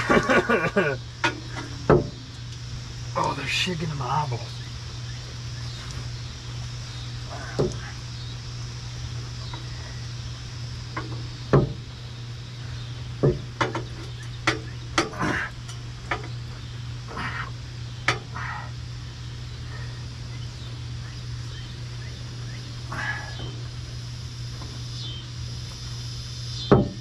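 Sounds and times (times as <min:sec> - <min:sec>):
low hum: 0:00.0 - 0:27.0
knocks and scrapes on exhaust pipe: 0:01.2 - 0:02.2, 0:13.2 - 0:16.4.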